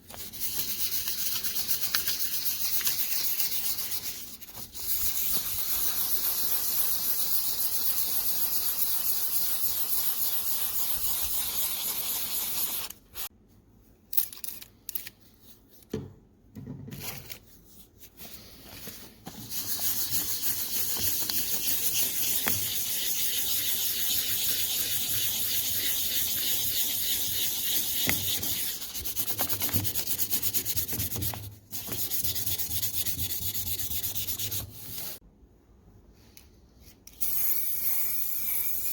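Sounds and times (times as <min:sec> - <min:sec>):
hand sanding hiss: 0:00.2 - 0:13.3, 0:19.4 - 0:31.2.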